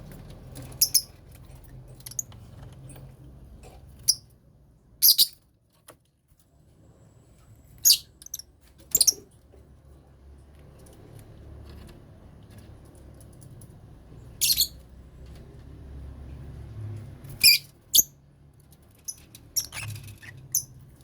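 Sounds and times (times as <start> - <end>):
high-pitched bird chirps: 0.8 - 1.1, 5.0 - 5.4, 7.8 - 8.4, 14.4 - 14.8, 17.4 - 18.1, 19.1 - 20.7.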